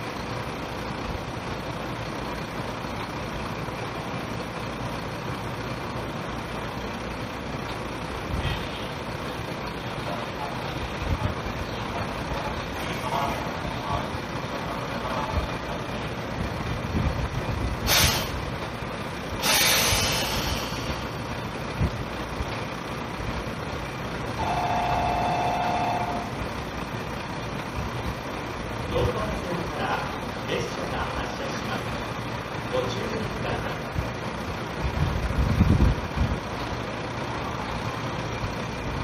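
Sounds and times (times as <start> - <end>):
electric train humming: 0.0 - 39.0
air release hiss: 17.8 - 18.4, 19.4 - 21.1
two-note electronic tone: 24.4 - 26.4.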